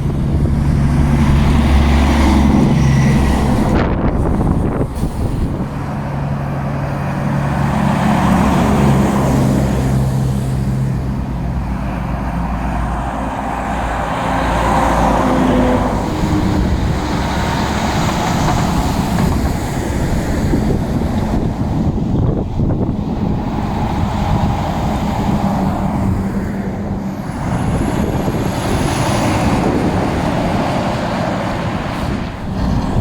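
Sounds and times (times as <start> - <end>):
diesel truck engine running: 0.0 - 33.0
road traffic noise: 0.0 - 33.0.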